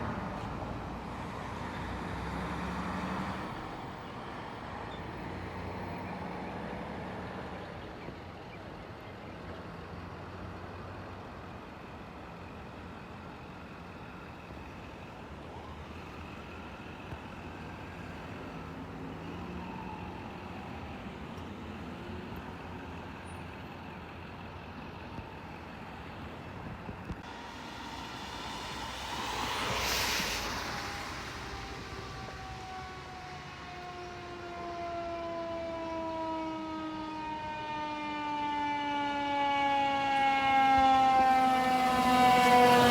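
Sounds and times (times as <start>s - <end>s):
road traffic: 0.0s - 42.9s
loud burst of rushing noise: 27.2s - 34.2s
faint tones sliding down: 27.2s - 34.8s.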